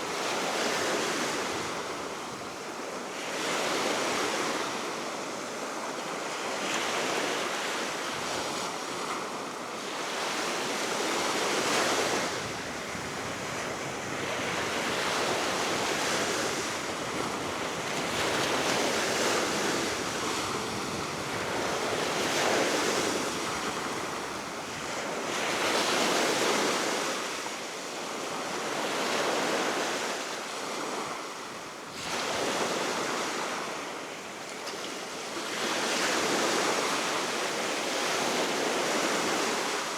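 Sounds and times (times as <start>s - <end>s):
waves breaking on shore: 6.4s - 27.6s
wind on microphone: 11.8s - 25.0s.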